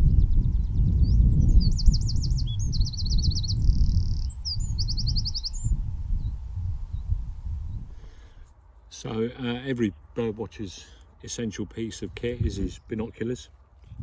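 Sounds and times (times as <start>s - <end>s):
songbird singing trills: 0.0s - 8.1s
wind rumble on microphone: 0.0s - 8.5s, 12.0s - 13.1s, 13.8s - 14.0s.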